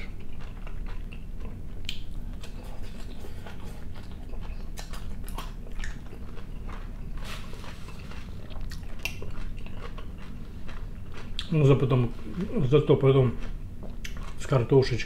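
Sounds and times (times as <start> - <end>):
person chewing food: 0.0 - 14.5
wet mouth clicks and smacks: 1.8 - 2.1, 14.0 - 14.2.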